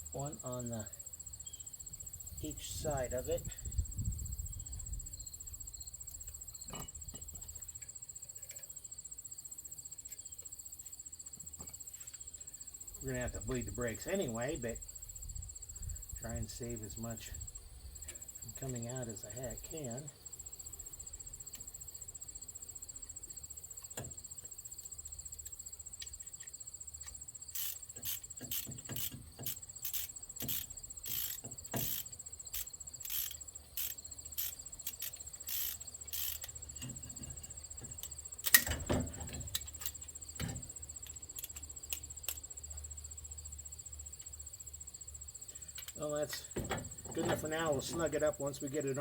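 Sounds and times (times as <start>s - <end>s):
crickets chirping: 0.0s - 49.0s
hand tool clicks and knocks: 27.0s - 42.4s.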